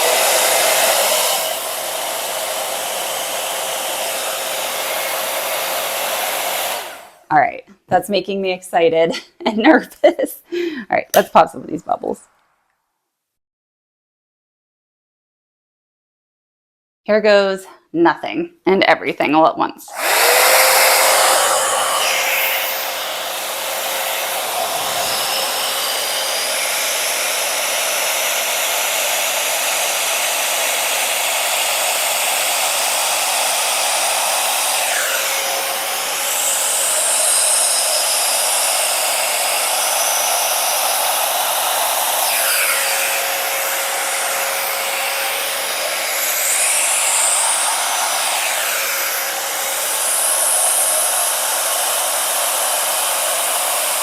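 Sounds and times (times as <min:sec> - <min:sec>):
blow dryer running: 0:00.0 - 0:07.4, 0:19.9 - 0:54.0.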